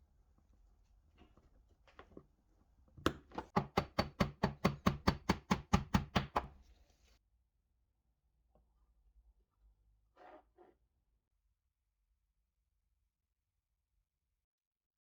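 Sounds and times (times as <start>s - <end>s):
rapid sharp knocks: 3.1s - 6.5s.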